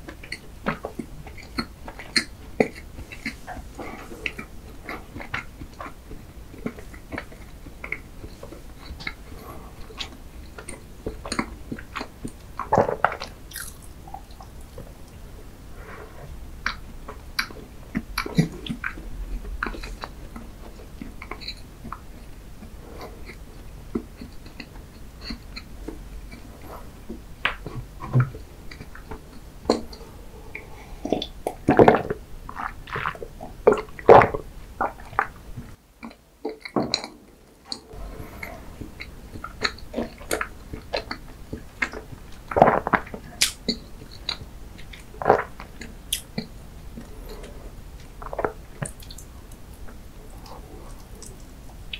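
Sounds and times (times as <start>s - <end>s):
wet chewing with mouth clicks: 0.0s - 51.9s
gulping a drink: 0.3s - 15.2s, 26.3s - 35.4s.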